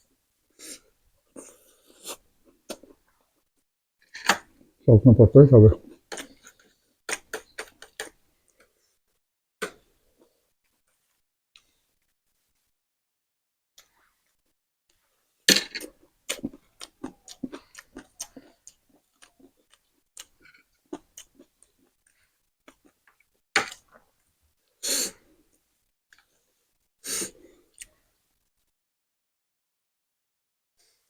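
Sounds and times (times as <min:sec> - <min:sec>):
chewing: 0:16.3 - 0:24.1.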